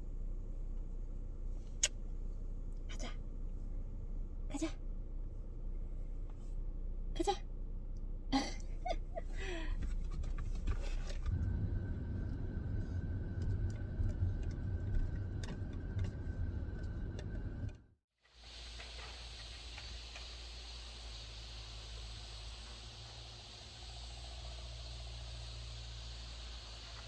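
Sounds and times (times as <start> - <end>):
car road rumble: 0.0 - 27.0
outdoor hiss: 18.2 - 27.0.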